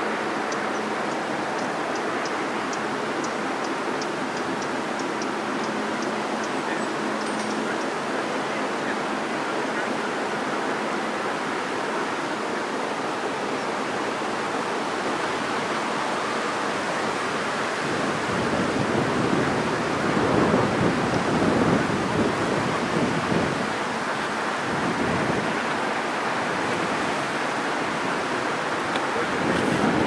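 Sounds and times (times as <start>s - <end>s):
wind on microphone: 17.1s - 30.0s
wind buffeting rumble: 17.9s - 30.0s.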